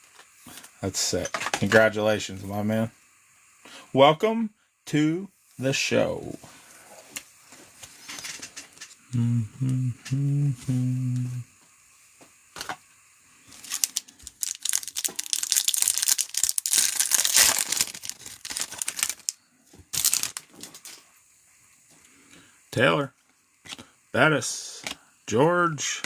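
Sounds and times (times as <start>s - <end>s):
foil wrapper tearing and crinkling: 13.5s - 21.0s.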